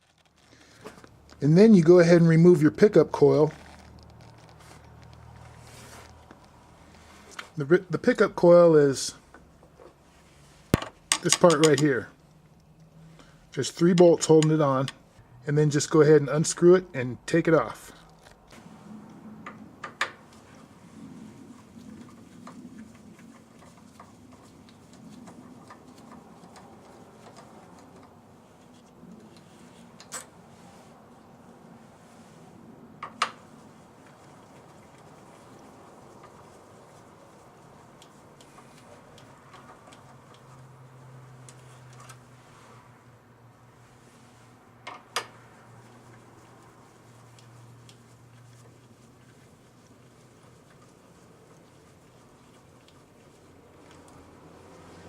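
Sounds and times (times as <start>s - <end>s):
hand tool clicking on metal parts: 10.8s - 11.9s.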